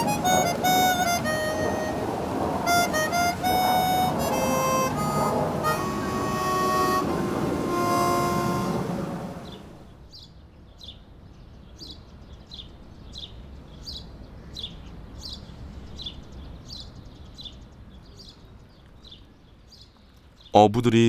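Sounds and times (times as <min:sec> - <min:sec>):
harmonica music: 0:00.0 - 0:09.7
bird chirping: 0:02.7 - 0:21.0.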